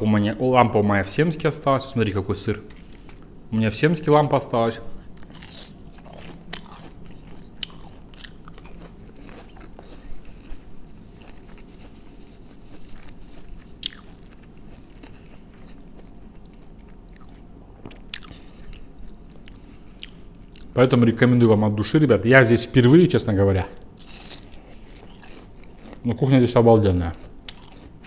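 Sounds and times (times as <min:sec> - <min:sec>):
low steady hum: 0:00.0 - 0:28.0
person chewing crunchy food: 0:02.6 - 0:03.3, 0:05.0 - 0:20.8, 0:23.8 - 0:28.0.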